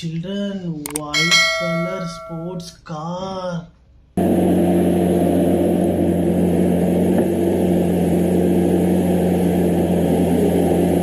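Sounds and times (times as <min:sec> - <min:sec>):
sports car engine running: 0:04.2 - 0:11.0.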